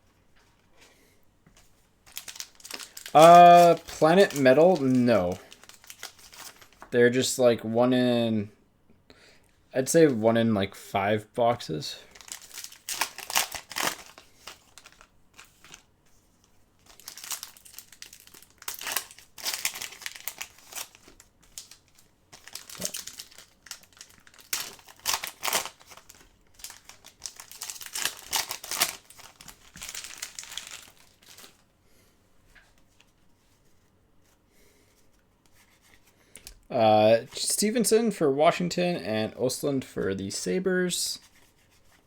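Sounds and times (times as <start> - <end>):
card pack wrappers tearing and crinkling: 2.0 - 6.9, 12.1 - 15.9, 16.8 - 31.7.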